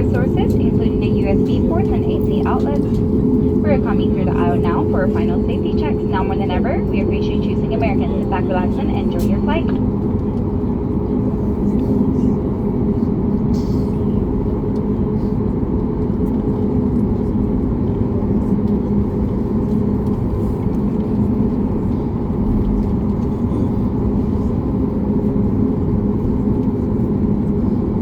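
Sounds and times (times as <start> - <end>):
low steady tones: 0.0 - 9.9
aircraft cabin hum: 0.0 - 10.5.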